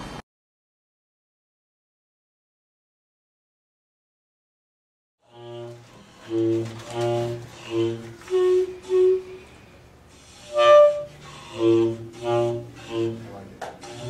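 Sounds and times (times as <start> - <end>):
pitched notes on household objects: 5.3 - 14.0.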